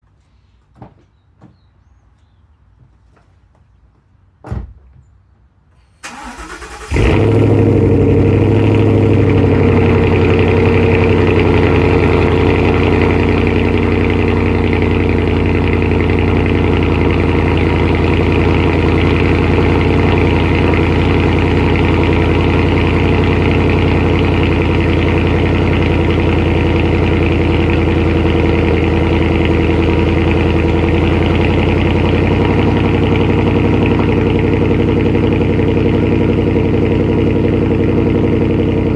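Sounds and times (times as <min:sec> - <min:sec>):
car starter cranking: 0:06.0 - 0:11.2
car engine cold idle: 0:06.0 - 0:38.9.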